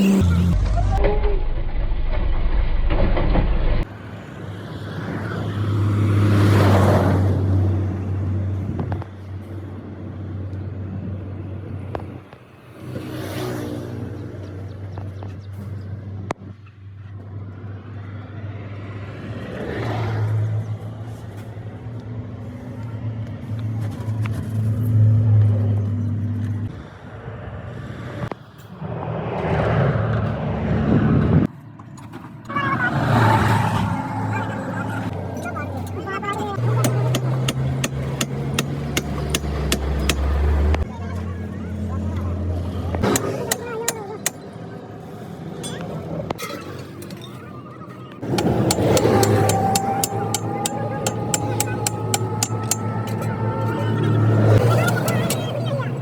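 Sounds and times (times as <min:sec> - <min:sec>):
vehicles passing: 0:00.0 - 0:01.7, 0:02.3 - 0:56.0
low engine hum: 0:13.9 - 0:46.4, 0:47.6 - 0:56.0.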